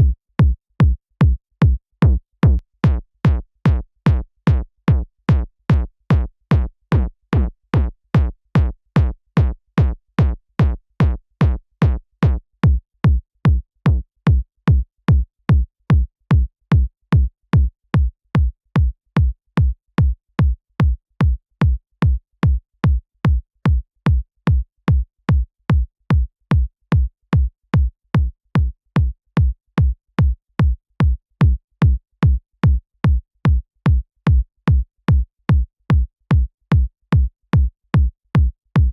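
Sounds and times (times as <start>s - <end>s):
electronic kick drum thumps: 0.0s - 38.9s.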